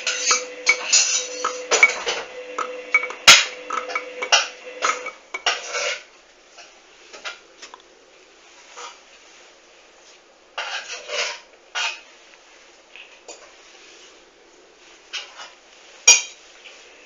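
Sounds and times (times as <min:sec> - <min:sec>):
clinks and knocks: 0:00.0 - 0:05.8
washing machine drum turning: 0:00.0 - 0:05.8.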